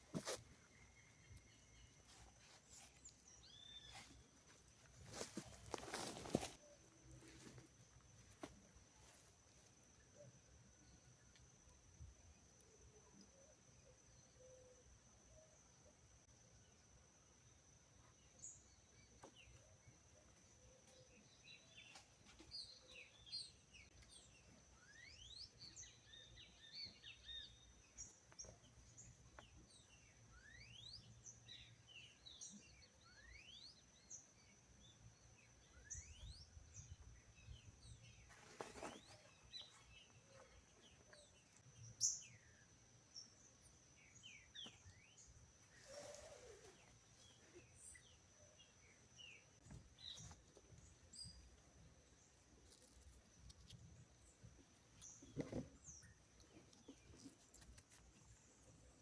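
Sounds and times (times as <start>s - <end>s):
wild birds chirping: 0.0s - 8.0s.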